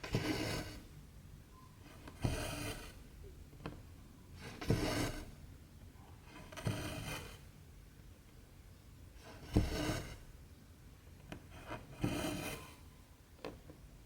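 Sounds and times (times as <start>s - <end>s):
thread rasping through fabric: 11.6s - 12.7s.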